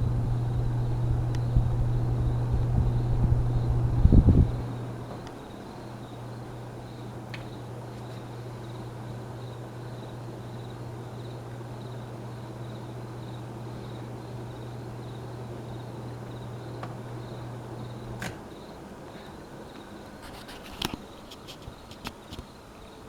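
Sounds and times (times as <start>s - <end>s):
fan switch click: 0.0s - 5.4s, 18.0s - 18.4s
ceiling fan motor humming: 0.0s - 23.0s.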